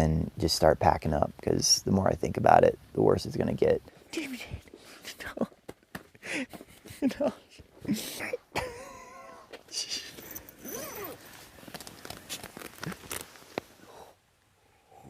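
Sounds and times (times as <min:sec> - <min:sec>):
light rustling: 0:09.5 - 0:13.9
dog whining: 0:10.6 - 0:11.2.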